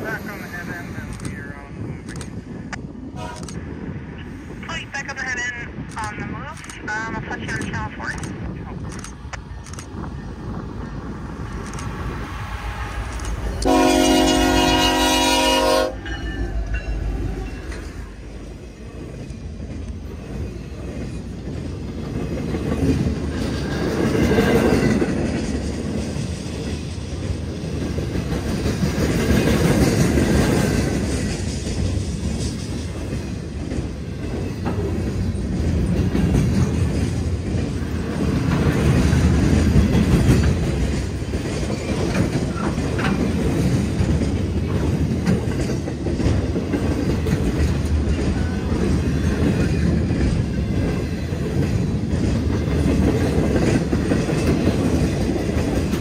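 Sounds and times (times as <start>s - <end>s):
train wheels rumbling: 0.0s - 56.0s
locomotive horn blast: 3.2s - 3.5s, 13.6s - 16.2s
wheels clickety-clack: 19.1s - 56.0s.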